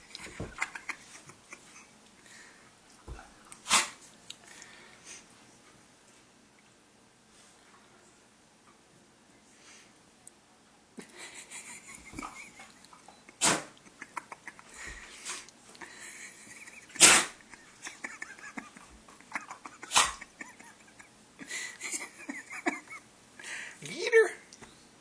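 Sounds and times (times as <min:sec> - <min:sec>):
dog sneezing: 0:03.6 - 0:04.0, 0:13.4 - 0:13.8, 0:16.9 - 0:17.4, 0:19.8 - 0:20.2.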